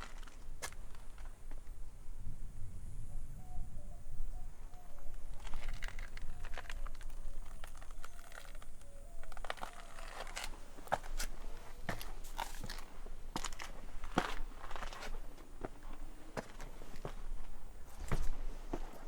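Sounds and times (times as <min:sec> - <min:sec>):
footsteps crunching on gravel: 0:05.3 - 0:19.0.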